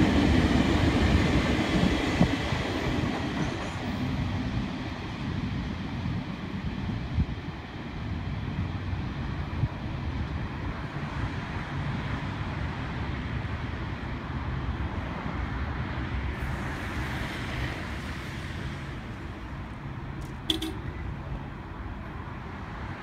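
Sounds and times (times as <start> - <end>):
freight train rumbling: 0.0 - 23.0
hiss: 16.3 - 19.3.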